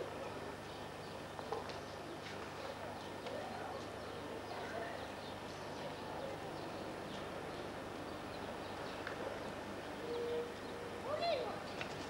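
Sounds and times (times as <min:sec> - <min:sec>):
open-air background noise: 0:00.0 - 0:12.0
faint bird chirps: 0:10.0 - 0:10.9.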